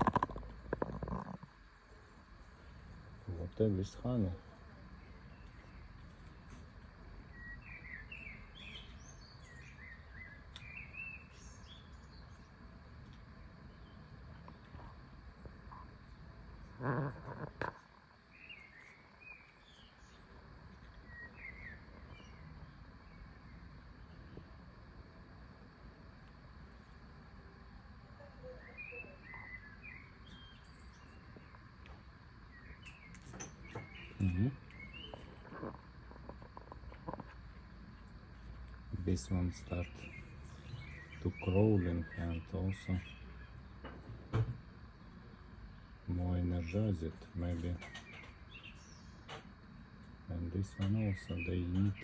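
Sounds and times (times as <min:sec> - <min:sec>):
low outdoor rumble: 0:00.0 - 0:52.0
songbird singing: 0:00.0 - 0:52.0.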